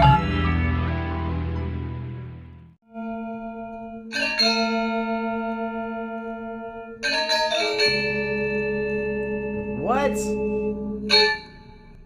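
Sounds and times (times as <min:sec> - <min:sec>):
gamelan bronze strokes ringing: 0:03.0 - 0:12.0.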